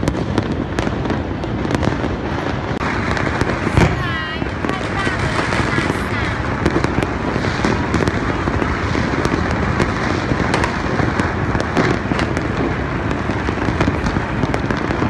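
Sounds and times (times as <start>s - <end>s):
fireworks and firecrackers crackling: 0.0s - 15.0s.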